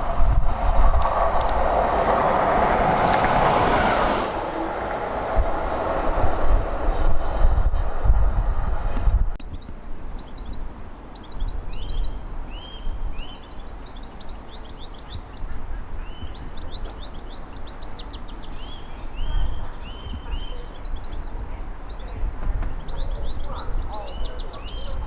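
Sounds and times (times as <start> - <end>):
wind rumble on microphone: 0.0 - 25.0
songbirds chirping and trilling: 9.4 - 25.0.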